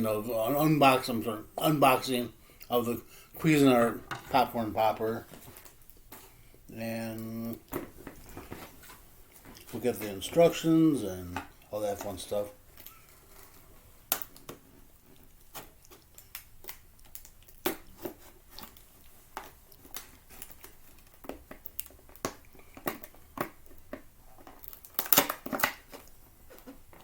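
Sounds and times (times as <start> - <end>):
packaging crinkling and tearing: 11.8 - 27.0.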